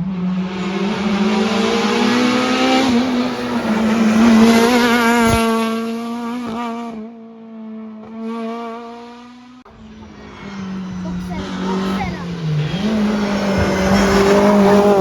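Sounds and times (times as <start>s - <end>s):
rally car engine full throttle: 0.0s - 15.0s
tyre and road noise: 9.7s - 15.0s.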